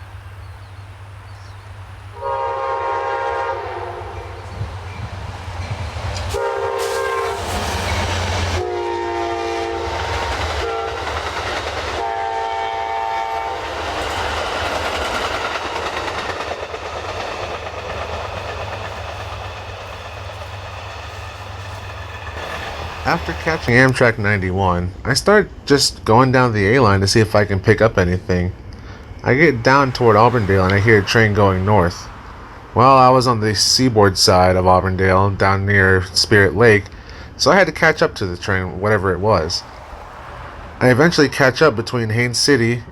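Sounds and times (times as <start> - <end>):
train passing on rails: 0.0 - 42.9
train horn blasts: 2.1 - 11.2, 11.9 - 13.8.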